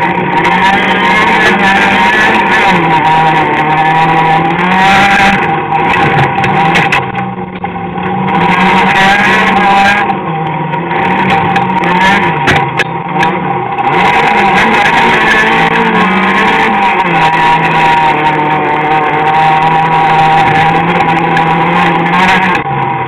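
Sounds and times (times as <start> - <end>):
car engine revving: 0.0 - 23.0
sharp clicks and knocks: 5.8 - 8.3, 10.4 - 13.5.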